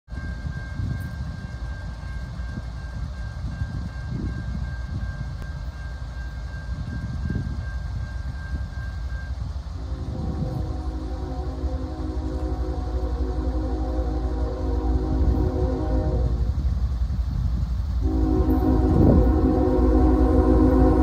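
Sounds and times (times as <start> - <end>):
diesel train rumble: 0.1 - 21.0
locomotive air horn: 9.8 - 16.8, 18.0 - 21.0.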